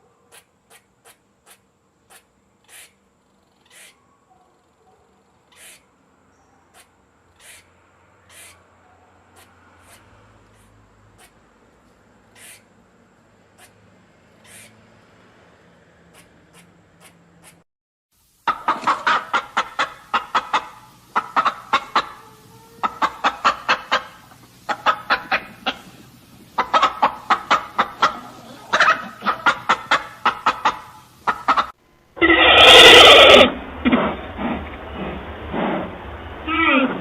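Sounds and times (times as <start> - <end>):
chickens clucking: 18.5 - 32.4.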